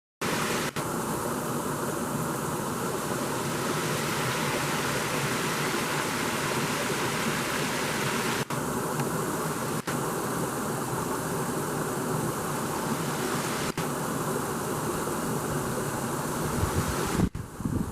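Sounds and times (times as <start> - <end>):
waterfall rushing: 0.2 - 13.8.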